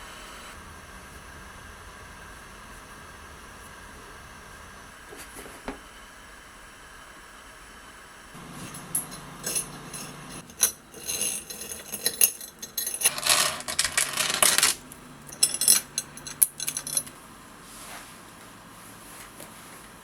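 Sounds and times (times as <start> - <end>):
small hard objects clinking: 8.6 - 17.2.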